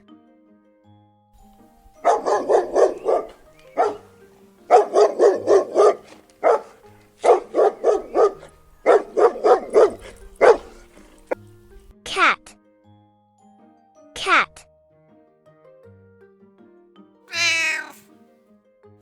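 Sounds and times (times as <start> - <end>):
dog barking: 2.0 - 11.4, 17.3 - 18.0.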